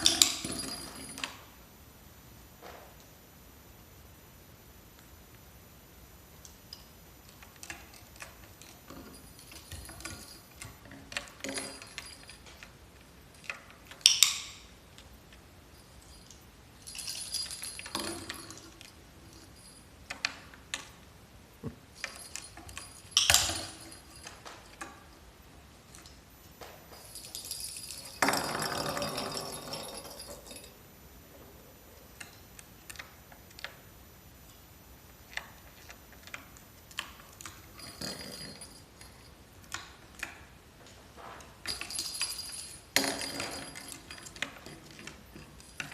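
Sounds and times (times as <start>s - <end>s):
metallic clinking and jingling: 0.0s - 1.5s, 6.7s - 14.7s, 15.6s - 20.5s, 21.9s - 25.2s, 25.9s - 40.0s, 41.6s - 45.9s.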